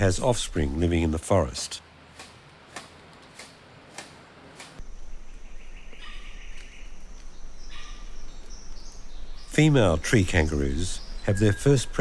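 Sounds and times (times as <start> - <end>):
chirping calls: 4.9 - 12.0.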